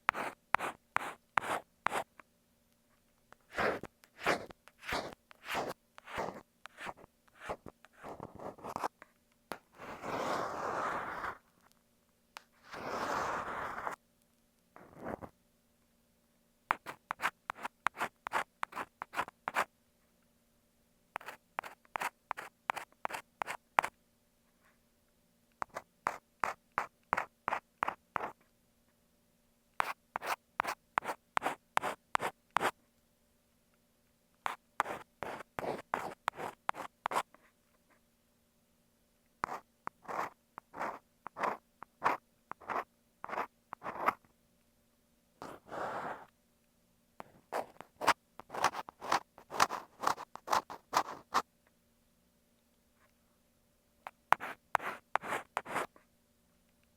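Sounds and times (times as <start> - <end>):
ear pick scraping microphone: 9.8 - 11.4, 12.6 - 14.0.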